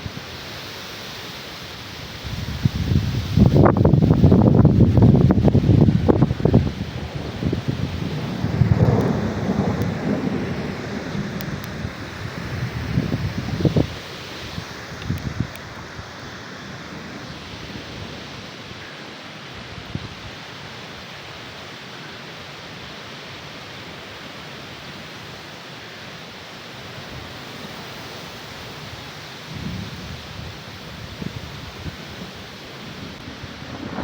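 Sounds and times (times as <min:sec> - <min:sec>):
heavy rain falling: 0:00.0 - 0:34.0
thunder rumbles: 0:02.3 - 0:18.6, 0:29.5 - 0:34.0.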